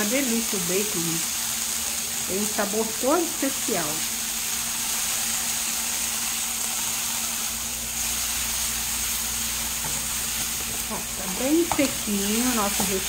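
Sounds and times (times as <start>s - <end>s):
food sizzling in a frying pan: 0.0s - 13.0s
spatula stirring in a pan: 4.4s - 13.0s.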